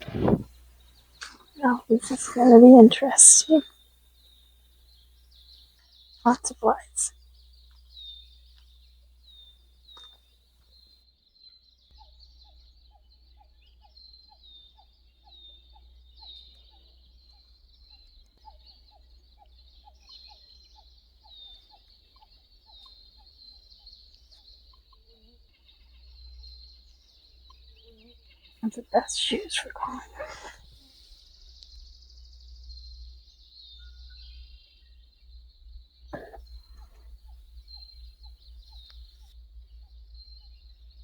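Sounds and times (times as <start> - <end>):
lower bird call: 0.0 - 0.5.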